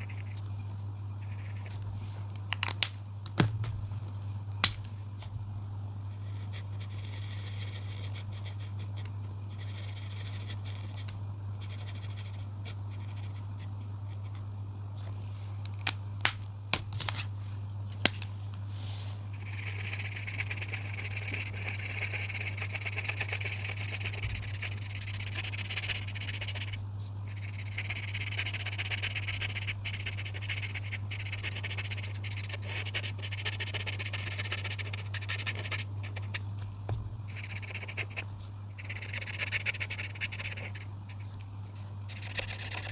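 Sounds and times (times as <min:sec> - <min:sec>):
steady low hum: 0:00.0 - 0:42.9
coloring strokes scratching on paper: 0:06.2 - 0:14.4, 0:18.7 - 0:36.5, 0:37.3 - 0:41.4, 0:42.1 - 0:42.9.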